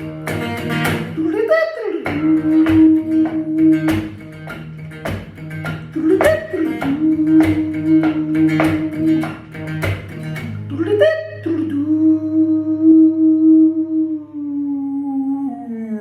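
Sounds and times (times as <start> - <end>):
instrumental band music with guitar: 0.0 - 1.4, 2.0 - 11.4.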